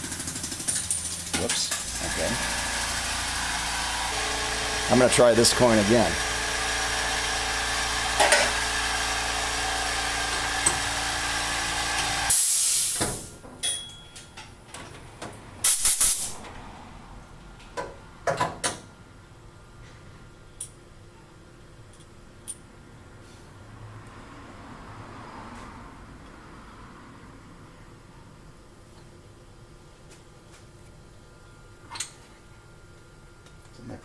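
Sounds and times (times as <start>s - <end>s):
milling machine running: 0.0s - 12.3s
loud short hiss: 12.3s - 13.3s, 15.6s - 16.4s.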